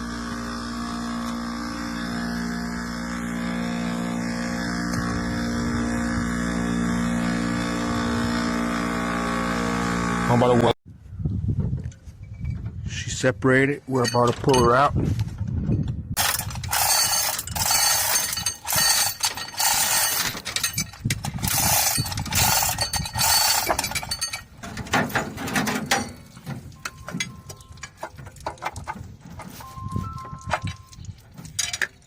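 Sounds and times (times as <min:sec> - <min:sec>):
chain clanking: 0:13.9 - 0:14.9, 0:15.6 - 0:32.0
metallic ratcheting: 0:16.2 - 0:29.5.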